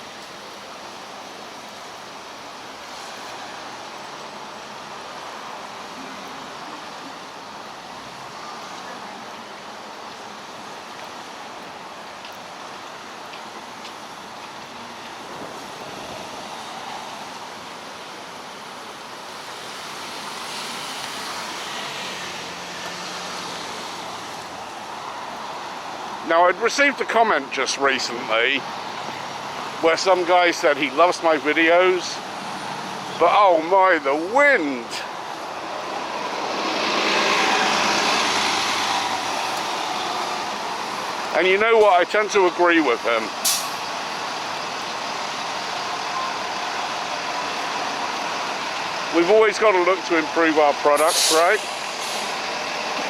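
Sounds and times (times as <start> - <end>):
street traffic: 0.0 - 53.0
muffled wind: 9.0 - 20.4
vehicle passing on road: 19.3 - 53.0.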